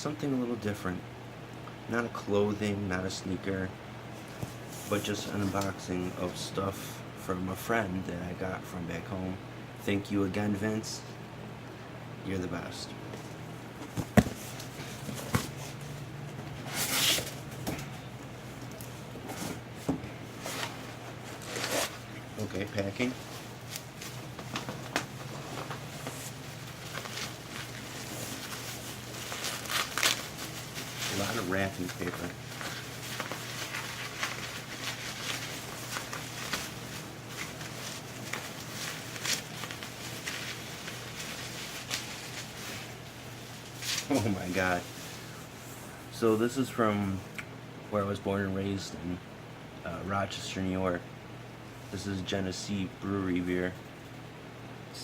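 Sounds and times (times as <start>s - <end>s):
packing paper crinkling: 20.3s - 45.4s.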